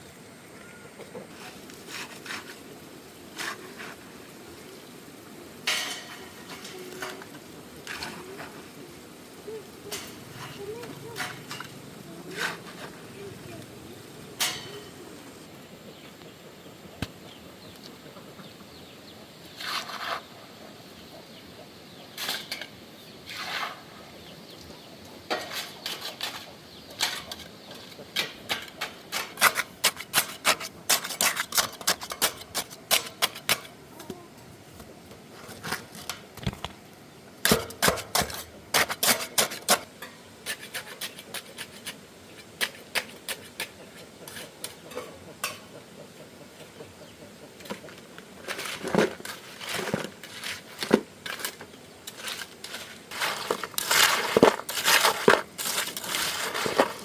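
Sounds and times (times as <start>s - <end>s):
small hard objects clinking: 48.4s - 57.0s.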